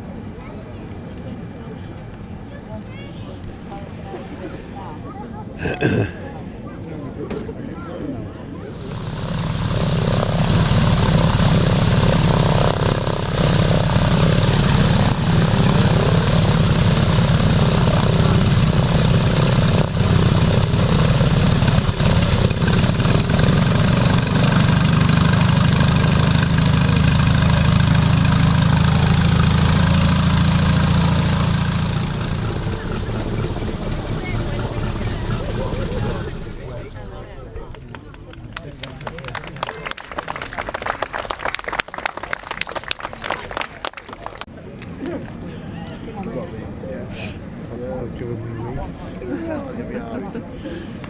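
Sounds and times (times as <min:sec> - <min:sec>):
biplane piston engine and propeller: 0:08.7 - 0:39.4.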